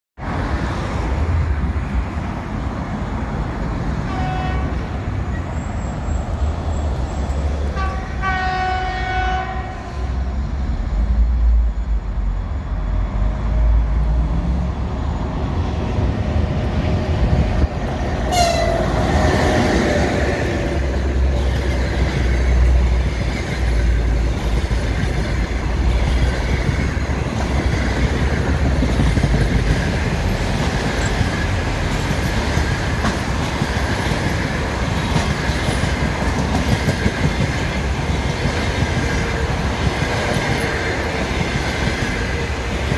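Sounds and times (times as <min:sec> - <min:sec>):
train rolling noise: 0:00.2 - 0:42.9
electric locomotive horn: 0:04.1 - 0:04.9, 0:07.7 - 0:10.3, 0:18.3 - 0:19.1.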